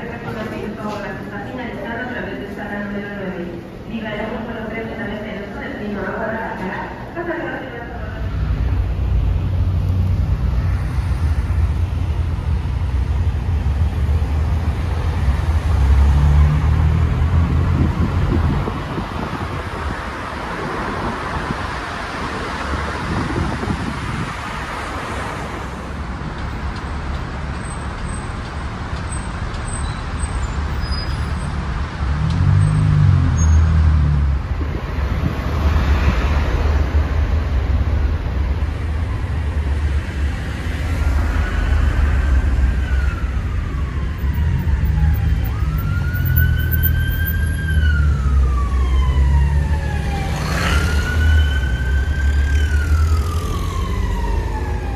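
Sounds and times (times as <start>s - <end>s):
car road and engine rumble: 3.4s - 54.9s
emergency siren wailing: 40.5s - 54.9s.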